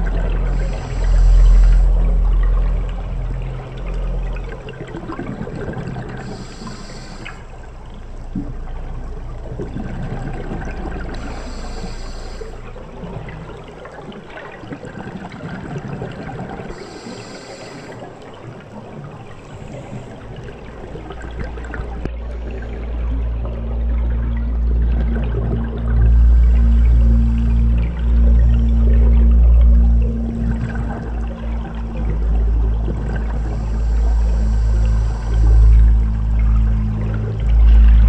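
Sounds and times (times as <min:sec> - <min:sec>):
diver breathing through regulator: 0:00.0 - 0:02.7, 0:06.2 - 0:07.6, 0:11.0 - 0:12.8, 0:16.7 - 0:18.2, 0:25.8 - 0:28.8, 0:33.1 - 0:36.4
underwater bubbling and gurgling: 0:00.0 - 0:38.0.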